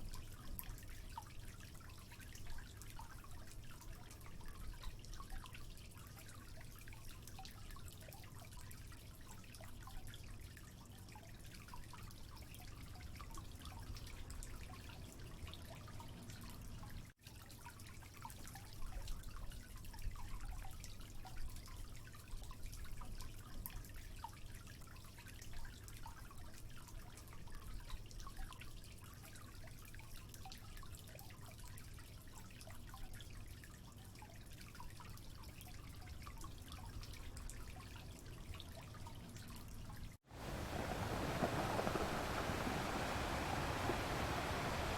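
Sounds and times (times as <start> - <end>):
water dripping and trickling: 0.0 - 44.9
steady faint hiss: 40.3 - 44.9.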